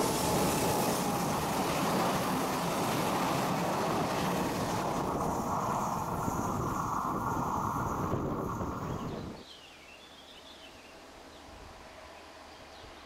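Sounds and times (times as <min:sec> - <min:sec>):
passenger coaches rolling on rails: 0:00.0 - 0:09.4
wind on the microphone: 0:03.1 - 0:09.4.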